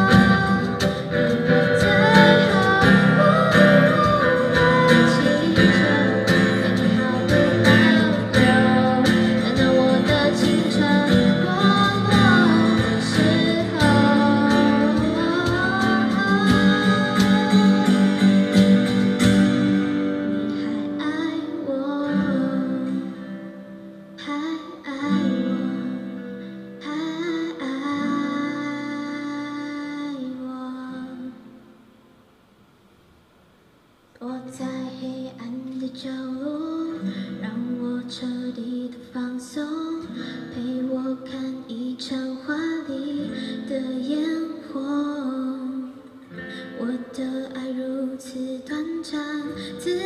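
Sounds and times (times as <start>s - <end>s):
live band guitars playing: 0.0s - 26.8s.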